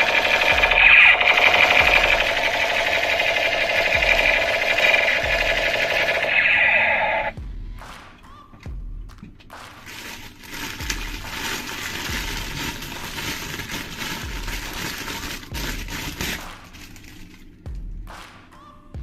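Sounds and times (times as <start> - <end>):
packaging crinkling: 0.0 - 7.3, 9.8 - 17.5.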